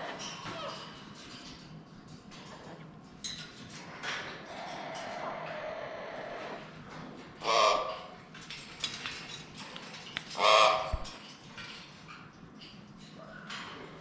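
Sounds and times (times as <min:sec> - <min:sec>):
parrot squawking loudly: 0:07.4 - 0:08.0, 0:10.4 - 0:11.1.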